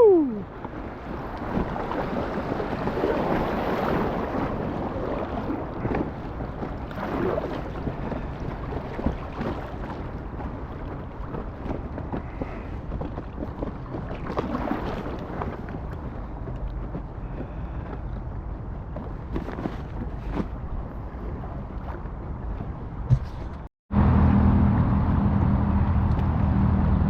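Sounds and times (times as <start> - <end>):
river water rushing and splashing: 0.0 - 11.8
wind buffeting microphone: 0.0 - 23.7.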